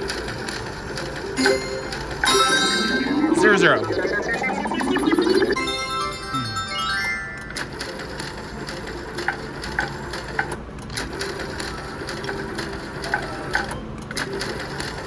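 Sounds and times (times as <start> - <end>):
casino background noise: 0.0 - 15.0
slot machine clicks and chimes: 0.1 - 10.4.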